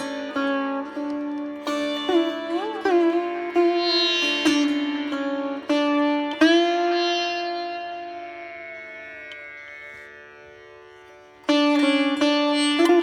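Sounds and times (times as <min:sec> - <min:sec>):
plucked string instrument notes: 0:11.4 - 0:13.0.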